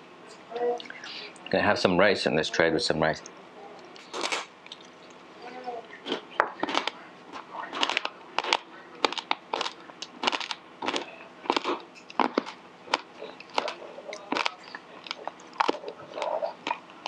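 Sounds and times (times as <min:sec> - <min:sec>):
crunchy crackers being chewed: 0:03.8 - 0:05.2, 0:05.8 - 0:17.0.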